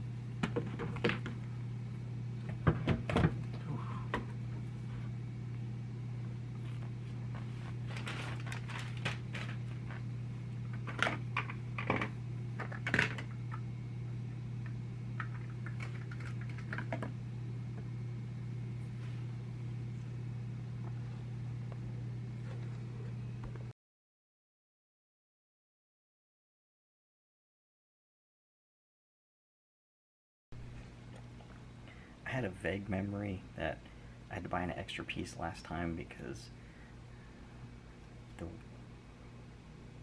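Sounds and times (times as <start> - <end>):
steady low hum: 0.0 - 23.8, 30.6 - 40.0.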